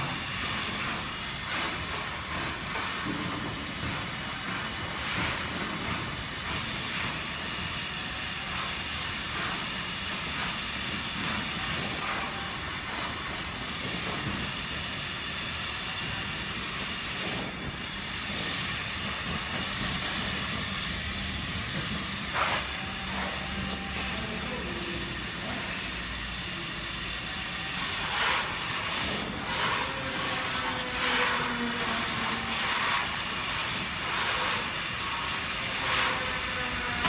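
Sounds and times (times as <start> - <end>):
torch flame hissing: 13.7 - 37.0.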